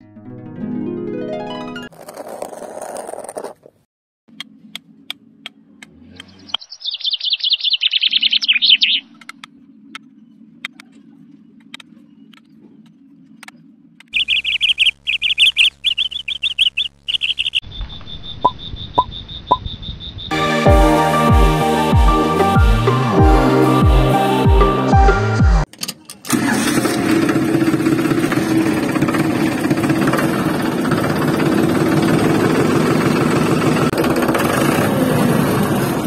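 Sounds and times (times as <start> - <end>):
music: 0.0 - 1.9, 20.3 - 25.7
birds chirping in high trills: 6.2 - 10.5, 14.1 - 20.4
scattered clicks: 9.1 - 10.9.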